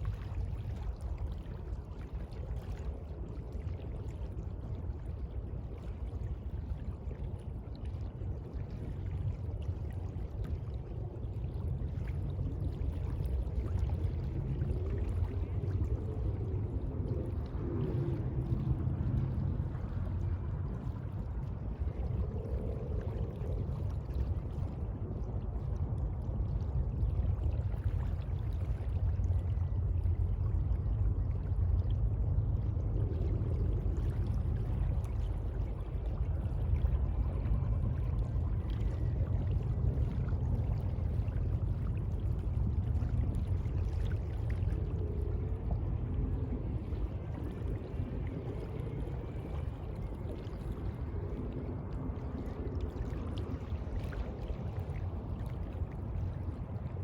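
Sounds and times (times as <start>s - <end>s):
sea water sloshing: 10.0s - 57.0s
deep low rumble: 13.0s - 56.3s.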